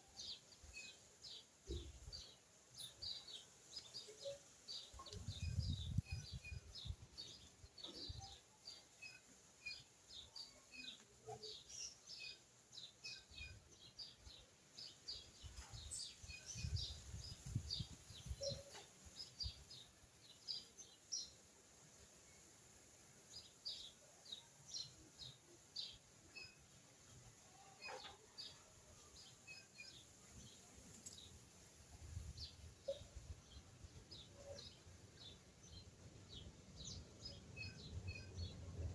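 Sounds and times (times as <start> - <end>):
small birds chirping: 0.0 - 38.9
low wind rumbles: 5.2 - 7.0.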